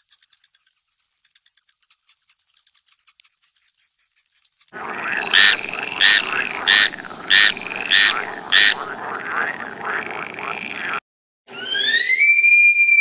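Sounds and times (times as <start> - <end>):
frog chorus: 4.7 - 11.0
frog croaks: 4.7 - 11.0.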